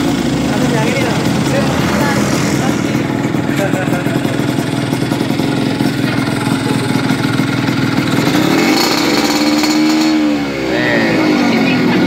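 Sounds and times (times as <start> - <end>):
two-stroke engine idling and revving: 0.0 - 12.0.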